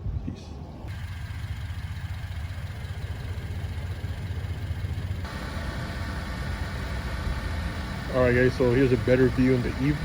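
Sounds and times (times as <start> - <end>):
car engine idling: 0.9 - 10.0.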